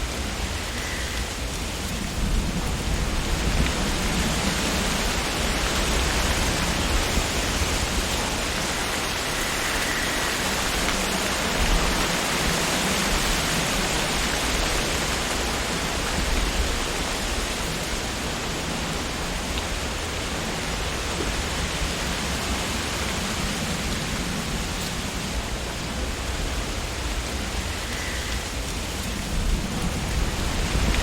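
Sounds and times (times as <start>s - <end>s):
wind rustling tree leaves: 0.0s - 31.0s.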